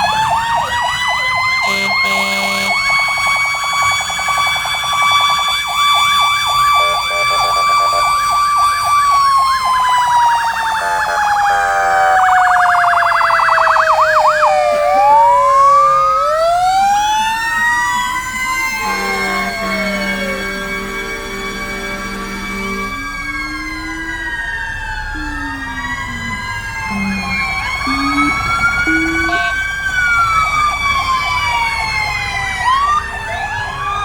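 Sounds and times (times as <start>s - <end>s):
fire truck sirens wailing and yelping: 0.0s - 34.0s
steady horn blast: 1.6s - 3.0s, 18.6s - 24.4s, 25.2s - 29.9s.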